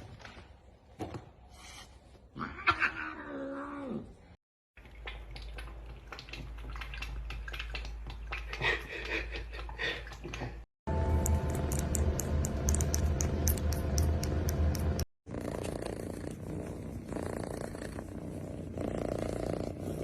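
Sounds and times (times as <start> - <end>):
steady low hum: 10.9 - 17.1.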